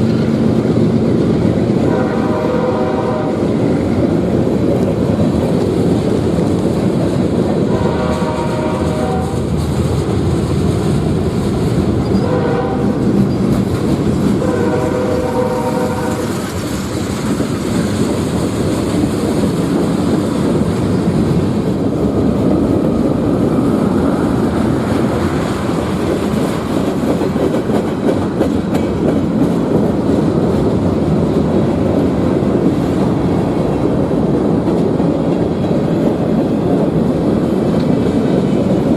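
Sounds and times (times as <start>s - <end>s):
train rumbling past: 0.0s - 38.9s
wheels clattering on rails: 0.0s - 38.9s
locomotive horn blasts: 1.8s - 3.5s, 7.6s - 9.4s, 12.2s - 13.0s, 14.4s - 16.3s.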